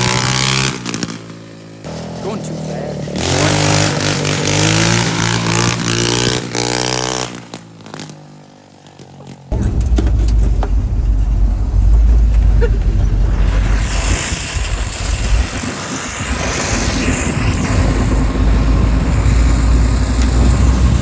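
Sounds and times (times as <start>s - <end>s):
vehicle engine running: 0.0s - 6.8s, 9.5s - 21.0s
rushing air hiss: 9.5s - 21.0s
wind rumble on microphone: 9.5s - 21.0s.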